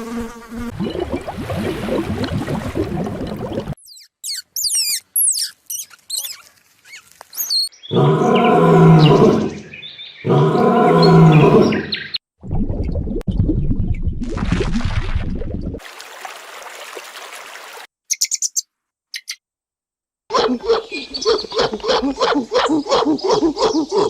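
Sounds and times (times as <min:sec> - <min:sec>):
high whistling chirps: 0:03.8 - 0:07.8
long low animal calls: 0:07.9 - 0:09.6.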